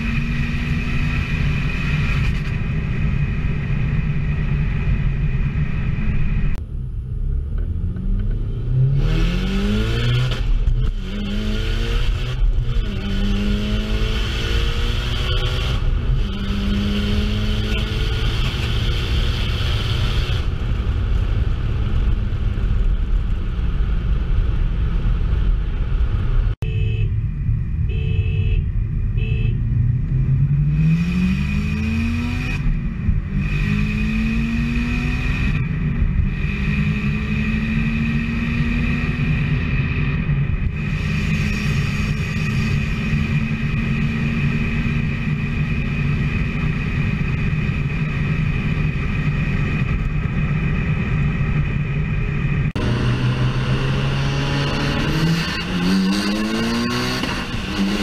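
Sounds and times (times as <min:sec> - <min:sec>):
car engine accelerating: 0:48.6 - 0:58.0.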